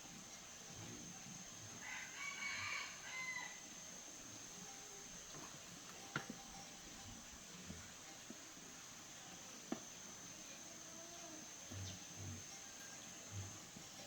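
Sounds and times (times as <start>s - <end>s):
high-pitched hiss: 0.0s - 14.0s.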